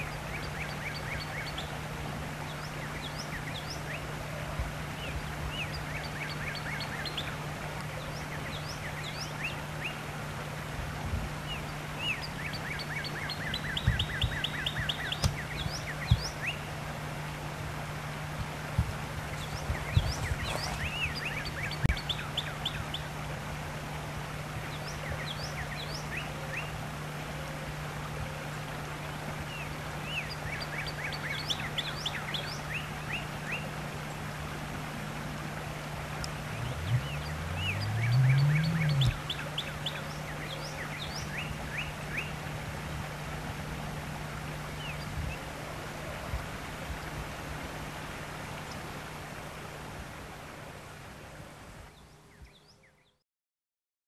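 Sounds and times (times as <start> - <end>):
songbird chirping: 0.0 - 10.2, 11.4 - 16.9, 18.8 - 23.2, 24.6 - 42.6
steady low hum: 32.8 - 40.8
hum rising in pitch: 36.3 - 39.4.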